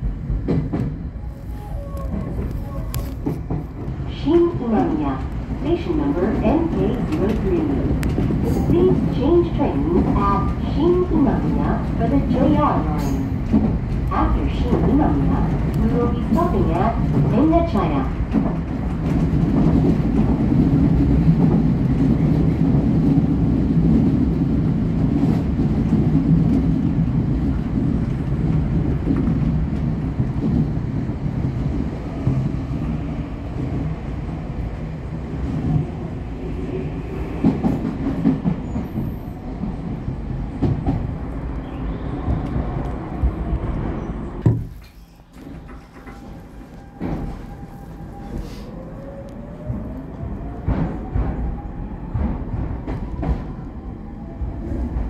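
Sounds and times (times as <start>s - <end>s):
train rail rumble: 0.0s - 55.0s.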